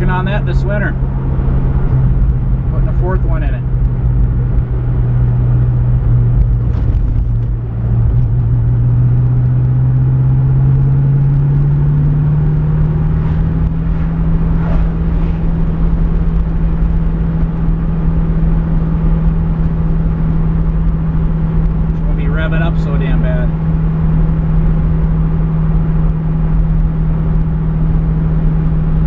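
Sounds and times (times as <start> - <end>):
car engine at high revs: 0.0 - 29.0
road rumble: 0.0 - 29.0.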